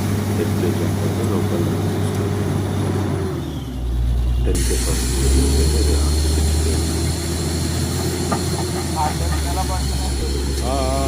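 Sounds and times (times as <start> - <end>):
engine and compressor hum: 0.0 - 11.0
compressed air hissing: 4.5 - 11.0.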